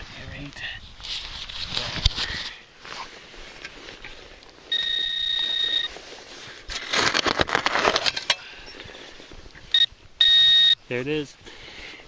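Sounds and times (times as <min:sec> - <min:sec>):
soil crunching and scraping: 0:00.0 - 0:09.8
metal detector beep: 0:04.7 - 0:06.0, 0:09.7 - 0:10.8.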